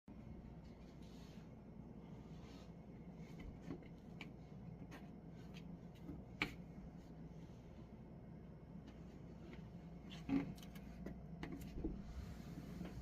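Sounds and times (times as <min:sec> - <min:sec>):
clothes dryer humming: 0:00.1 - 0:13.0.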